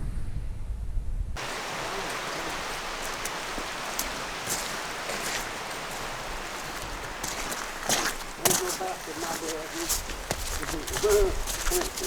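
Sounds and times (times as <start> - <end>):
running water hiss: 1.4 - 12.0.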